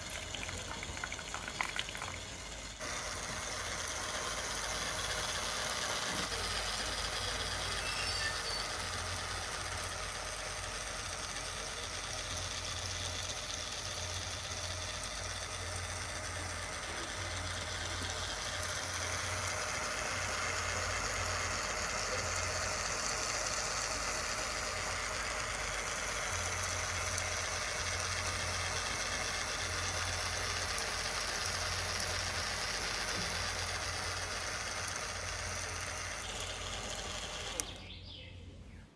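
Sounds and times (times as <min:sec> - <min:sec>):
small electric motor humming: 0:00.0 - 0:38.5.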